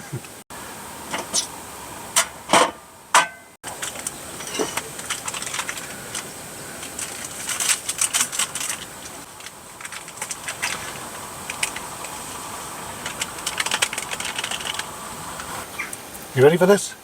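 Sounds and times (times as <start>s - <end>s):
small objects clicking and clattering: 3.7s - 12.2s, 13.0s - 14.9s.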